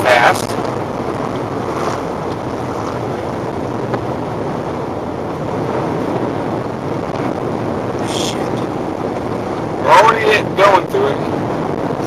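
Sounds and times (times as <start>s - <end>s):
car engine: 0.0s - 12.0s
water splashing against car: 0.1s - 6.6s.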